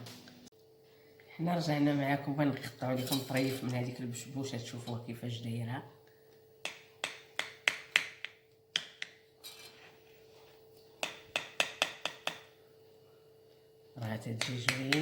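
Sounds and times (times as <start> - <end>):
knife clicking on baking dish: 14.4 - 15.0.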